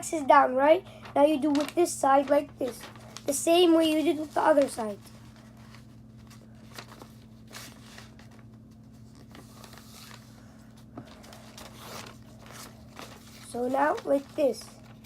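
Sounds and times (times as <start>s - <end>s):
paper rustling and creasing: 1.0s - 15.0s.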